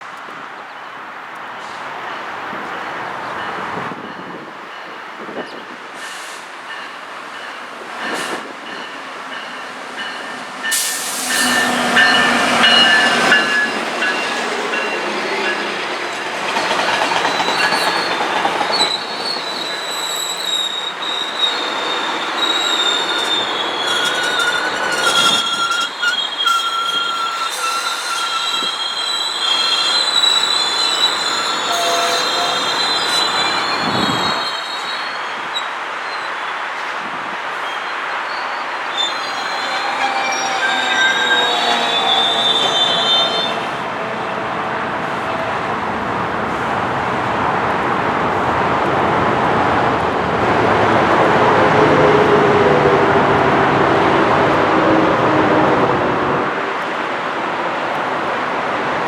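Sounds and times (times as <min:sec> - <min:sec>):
train rolling rumble: 0:01.2 - 0:59.0
train wheels squealing on rails: 0:03.3 - 0:43.9.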